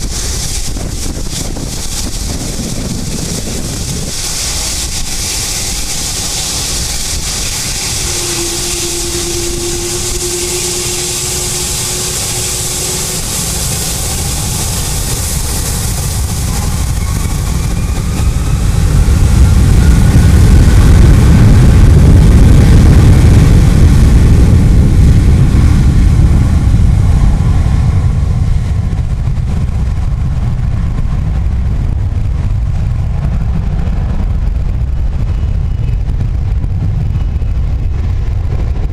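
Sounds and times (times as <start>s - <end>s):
jet engines roaring: 0.0s - 38.9s
faint rising jet whine: 4.0s - 21.2s.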